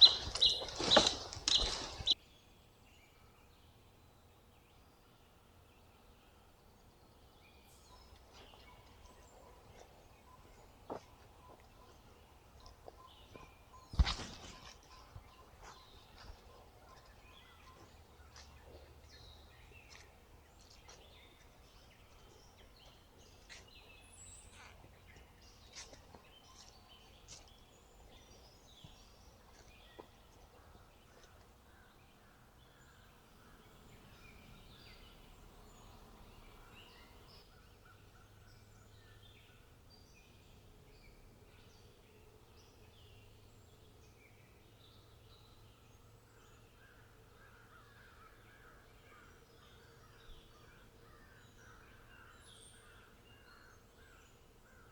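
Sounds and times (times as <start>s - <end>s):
bird chirps and calls: 0.0s - 2.2s.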